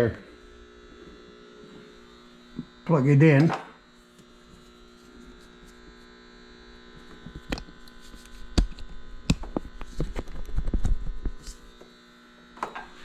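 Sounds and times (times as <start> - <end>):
inverter electrical hum: 0.0 - 13.0.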